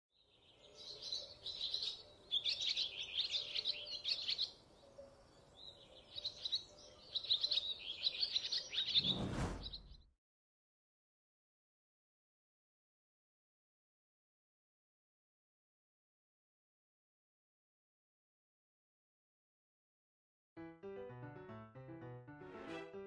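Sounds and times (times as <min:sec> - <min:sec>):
small birds chirping: 0:00.1 - 0:10.1
brief broadband noise: 0:08.9 - 0:10.0.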